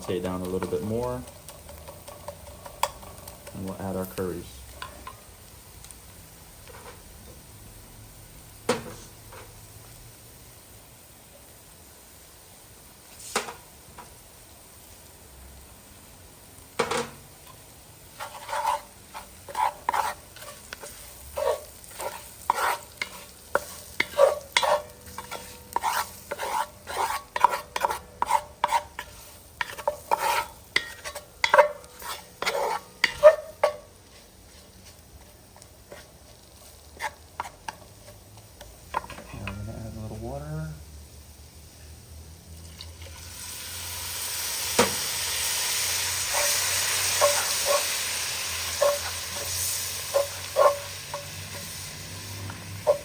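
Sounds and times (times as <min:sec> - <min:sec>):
stirring and scraping in a pot: 0:00.0 - 0:05.3, 0:16.9 - 0:39.6, 0:45.5 - 0:53.0
faint sizzle: 0:00.0 - 0:53.0.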